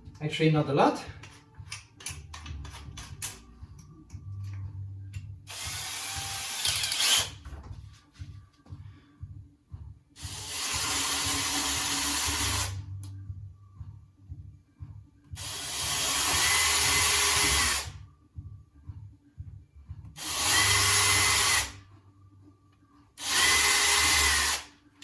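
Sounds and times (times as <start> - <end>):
power drill boring: 5.5 - 7.3, 10.2 - 12.8, 15.4 - 17.9, 20.2 - 21.8, 23.2 - 24.7.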